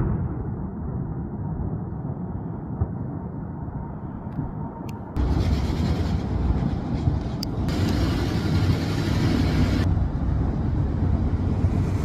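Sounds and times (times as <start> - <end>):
firework booms: 0.0 - 1.8.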